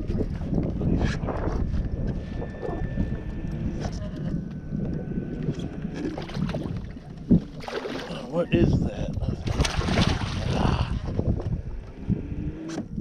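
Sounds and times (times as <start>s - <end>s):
water noise: 0.0s - 13.0s
wind buffeting microphone: 0.0s - 13.0s.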